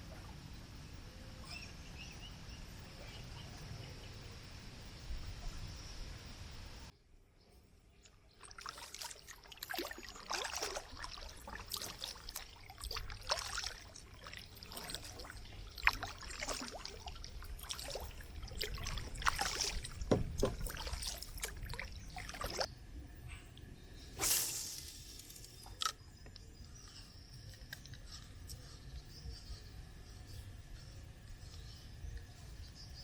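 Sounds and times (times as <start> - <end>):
water splashing and trickling: 8.0 - 22.7
paddle strokes in water: 8.4 - 22.7.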